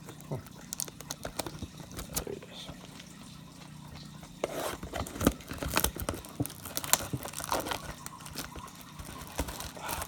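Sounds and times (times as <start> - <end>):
plastic wrap crinkling and ripping: 0.0 - 3.2, 4.4 - 10.0
razor blade slitting packaging: 4.4 - 10.0.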